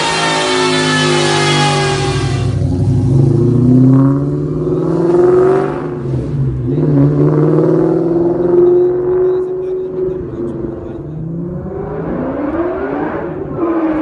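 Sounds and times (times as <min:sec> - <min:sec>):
high whine: 0:00.0 - 0:04.0
car engine revving: 0:00.0 - 0:14.0.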